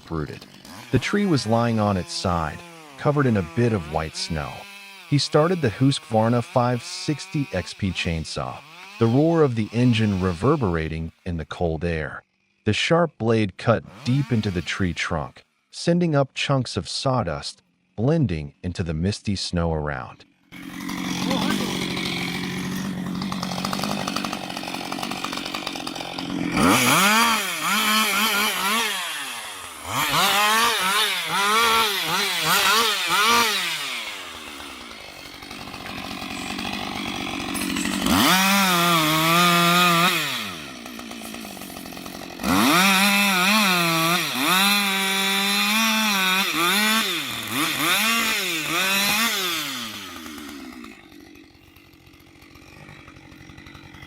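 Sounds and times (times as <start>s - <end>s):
chainsaw idling and cutting wood: 0.0s - 12.8s, 13.6s - 15.7s, 17.6s - 18.7s, 20.2s - 54.0s.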